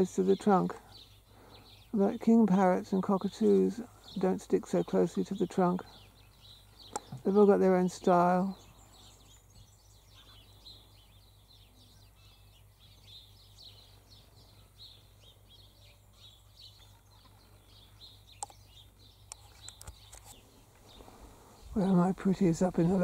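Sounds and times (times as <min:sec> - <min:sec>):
small birds chirping: 0:00.0 - 0:23.0
soft clicks: 0:18.4 - 0:18.6.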